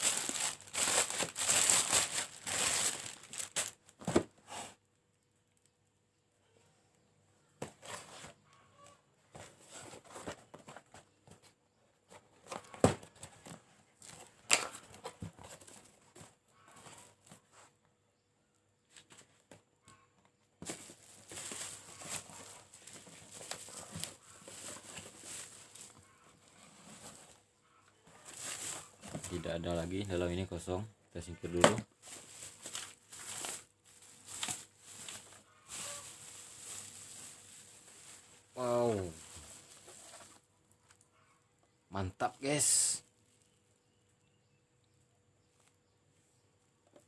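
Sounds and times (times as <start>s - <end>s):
wrapping rustling and crinkling: 0.0s - 4.3s, 20.6s - 30.8s, 31.5s - 41.0s.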